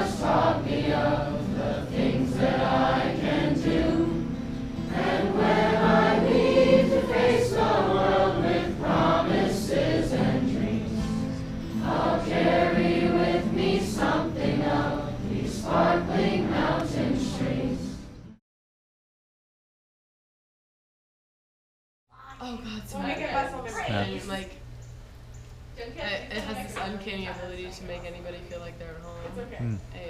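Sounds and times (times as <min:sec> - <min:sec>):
choir singing: 0:00.0 - 0:18.1.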